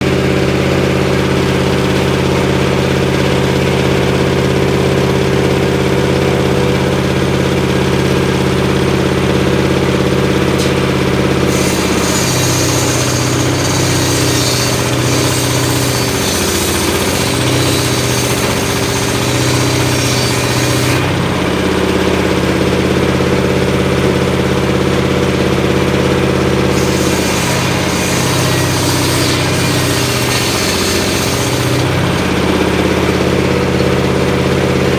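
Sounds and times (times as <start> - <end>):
engine-driven circular saw running: 0.0 - 34.9
saw cutting wood hiss: 10.6 - 21.2, 26.7 - 32.6.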